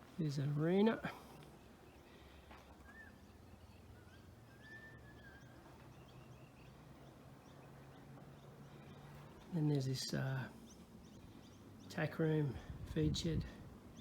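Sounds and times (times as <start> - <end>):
faint bird whistles: 2.8 - 6.5.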